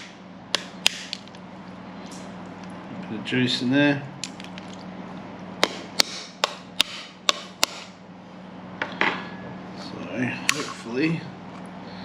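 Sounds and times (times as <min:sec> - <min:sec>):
sharp knocks on crab shell: 0:00.0 - 0:01.3, 0:05.6 - 0:07.9
shell crunching: 0:00.6 - 0:01.4, 0:04.2 - 0:04.9.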